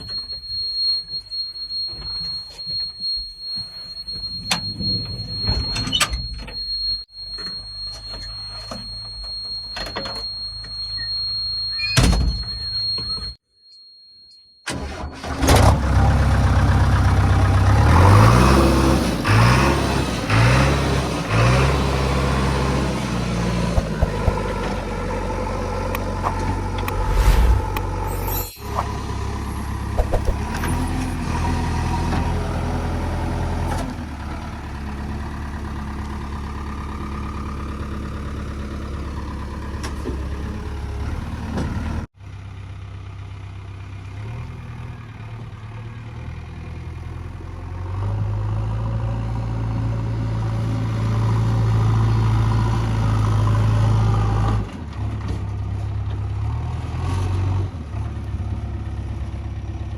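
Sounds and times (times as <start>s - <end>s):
heavy diesel engines running: 14.7s - 56.8s.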